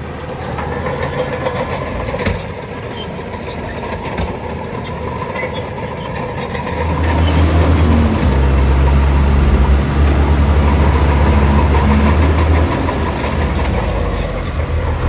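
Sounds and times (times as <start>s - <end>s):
heavy diesel engine running: 6.6s - 15.0s.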